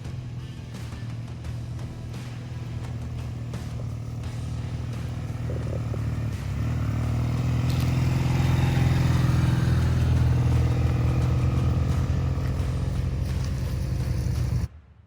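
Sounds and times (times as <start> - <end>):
motorcycle engine running: 0.0 - 14.7.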